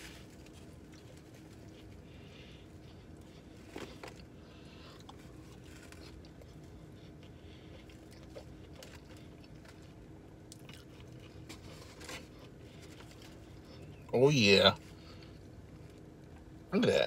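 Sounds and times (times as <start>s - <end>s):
chewing crunchy fried food: 0.0s - 14.2s, 14.8s - 16.7s
steady low hum: 0.0s - 17.0s.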